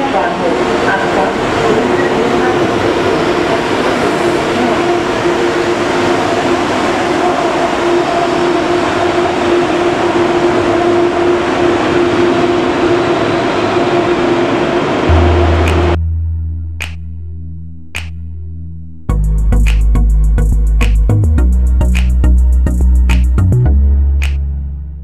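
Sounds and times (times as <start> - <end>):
train rolling: 0.0 - 16.0
electric hum from train: 0.0 - 16.4.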